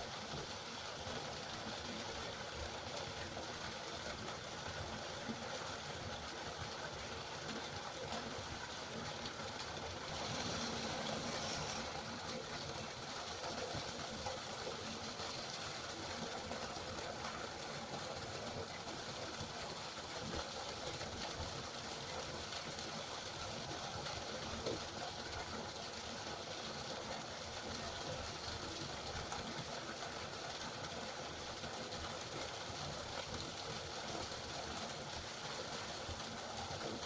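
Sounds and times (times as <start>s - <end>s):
steady rain falling: 7.6s - 37.0s.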